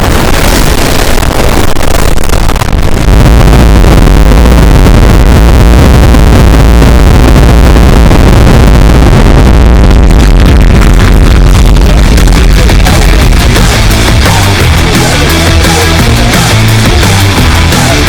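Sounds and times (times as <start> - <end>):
deep rumble: 0.0 - 18.0
distorted explosion: 0.0 - 18.0.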